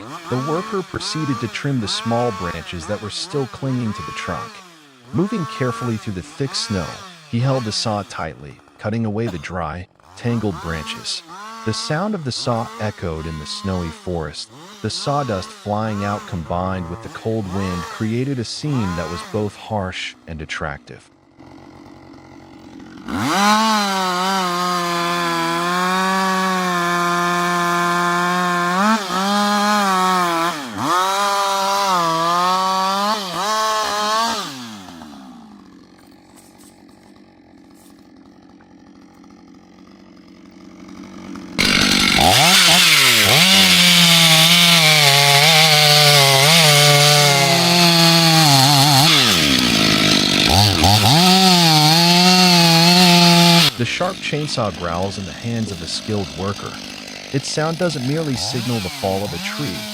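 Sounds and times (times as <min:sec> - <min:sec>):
chain tearing through wood: 0:00.0 - 0:08.3, 0:21.6 - 0:39.8, 0:40.7 - 0:59.9
chainsaw engine revving: 0:00.0 - 0:59.9.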